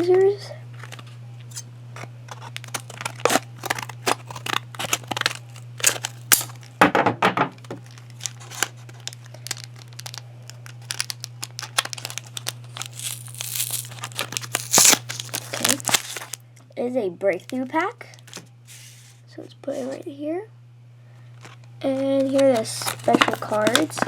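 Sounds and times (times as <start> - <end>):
packaging crinkling and tearing: 2.0 - 6.8, 7.6 - 16.4, 17.4 - 19.1, 21.4 - 24.0
scissors snipping packaging: 2.3 - 6.7, 7.8 - 16.4, 21.4 - 24.0.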